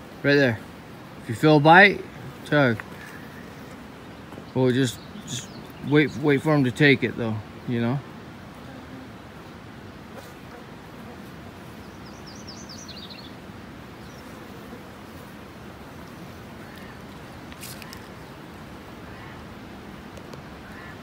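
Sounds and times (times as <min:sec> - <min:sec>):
outdoor background noise: 0:00.0 - 0:21.0
small bird chirping: 0:11.8 - 0:13.4.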